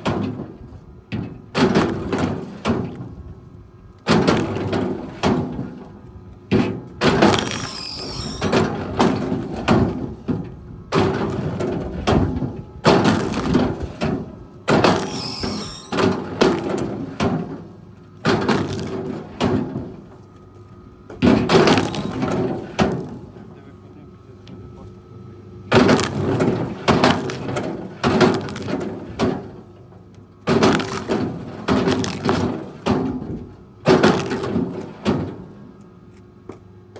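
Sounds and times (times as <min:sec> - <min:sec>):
wood cracking and splintering: 0:07.0 - 0:08.3, 0:11.0 - 0:17.6, 0:18.2 - 0:20.0, 0:21.2 - 0:23.2, 0:25.8 - 0:29.5, 0:30.4 - 0:34.8
engine running steadily: 0:15.9 - 0:36.9.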